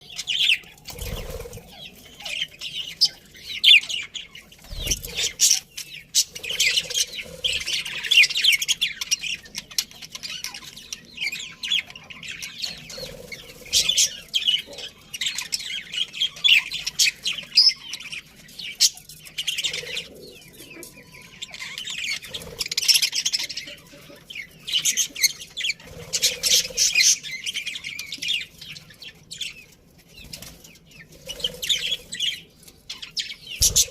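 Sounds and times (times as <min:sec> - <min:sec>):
budgerigars chattering and chirping: 0:00.0 - 0:33.9.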